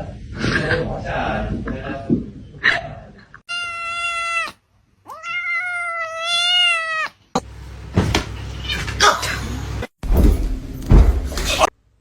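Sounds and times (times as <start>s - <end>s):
cat meowing: 3.5s - 7.2s.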